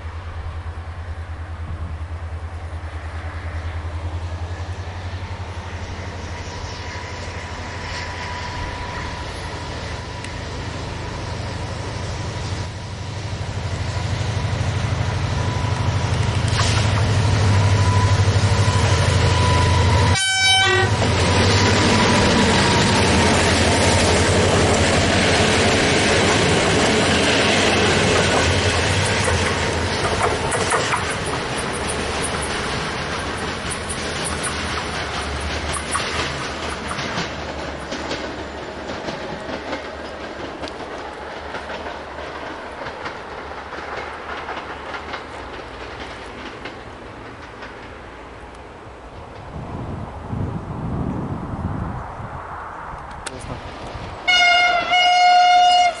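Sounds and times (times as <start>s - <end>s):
train wheels rattling on rails: 0.0s - 50.8s, 53.2s - 56.0s
diesel train engine drone: 0.0s - 56.0s.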